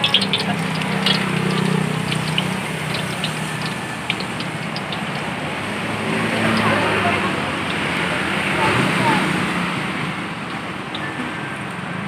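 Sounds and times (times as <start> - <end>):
small crackles: 0.0 - 5.3
food sizzling in hot oil: 0.0 - 8.2.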